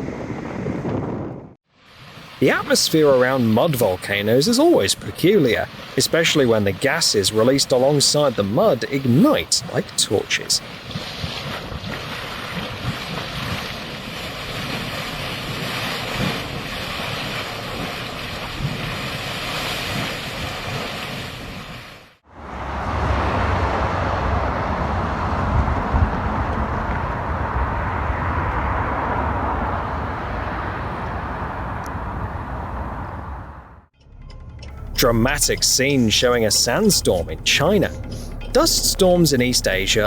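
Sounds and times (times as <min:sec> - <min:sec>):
wind buffeting microphone: 0:00.0 - 0:01.6, 0:10.6 - 0:21.7, 0:22.5 - 0:33.8
steady rushing noise: 0:34.8 - 0:40.0.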